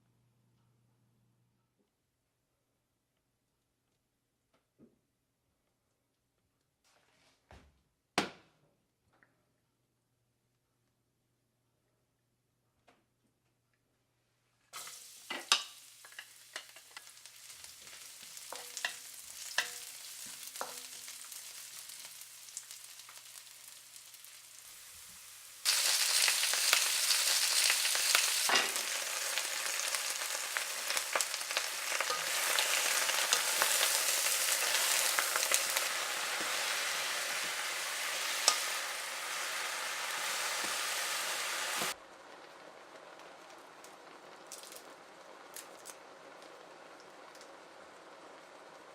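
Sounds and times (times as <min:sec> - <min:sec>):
food frying in hot oil: 0:14.8 - 0:48.9.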